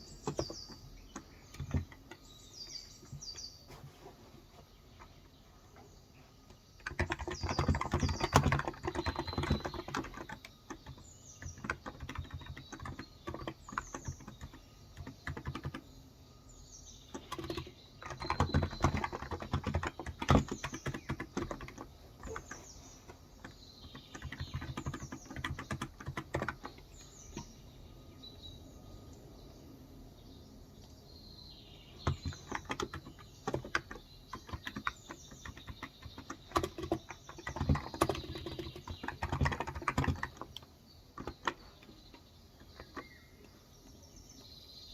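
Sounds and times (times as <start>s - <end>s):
birds chirping: 0.0s - 44.9s
typing on a keyboard: 0.2s - 3.4s, 6.8s - 15.9s, 16.9s - 27.7s, 32.0s - 43.6s.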